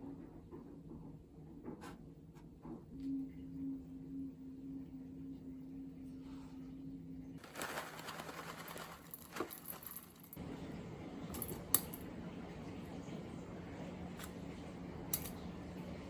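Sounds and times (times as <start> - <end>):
faint low hum: 0.0 - 16.0
handling rustling: 7.4 - 10.4.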